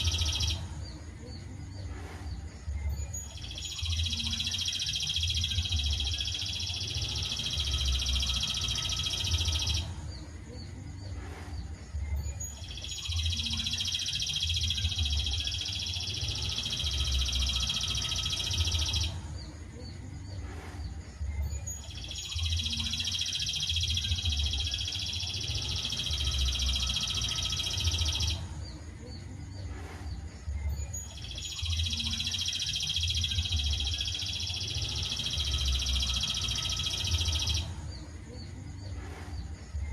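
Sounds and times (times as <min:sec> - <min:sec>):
high bird trill: 0:00.0 - 0:01.6, 0:02.7 - 0:10.1, 0:12.2 - 0:19.6, 0:21.4 - 0:29.3, 0:30.6 - 0:38.1.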